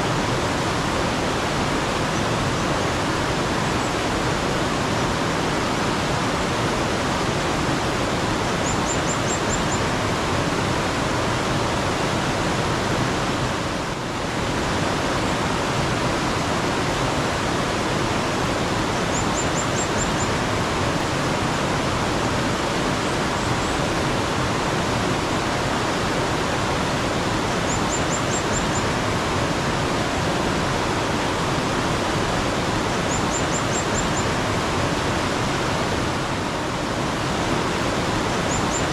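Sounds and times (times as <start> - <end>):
stream flowing water: 0.0 - 38.9
small bird calling: 8.4 - 10.0, 18.4 - 21.0, 27.5 - 29.0, 32.9 - 34.4, 37.7 - 38.9.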